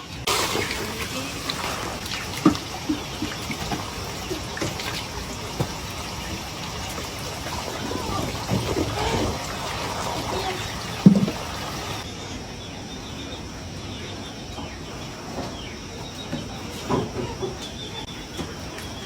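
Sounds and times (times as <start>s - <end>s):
water trickling and splashing: 0.1s - 12.1s.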